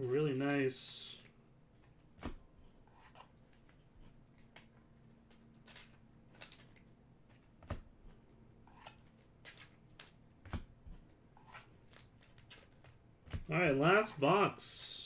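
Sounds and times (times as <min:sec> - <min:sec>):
trading card packaging crinkling: 0:00.0 - 0:00.7, 0:05.2 - 0:07.4.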